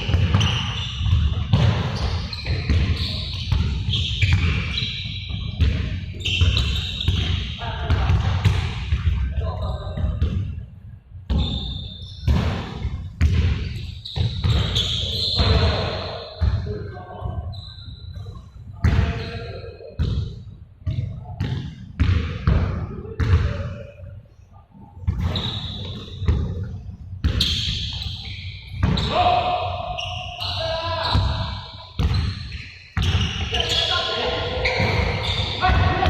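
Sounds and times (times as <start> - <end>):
basketballs bouncing on court: 0.0 - 10.6, 11.3 - 17.4, 20.0 - 23.8, 25.0 - 36.0
voices: 32.5 - 36.0.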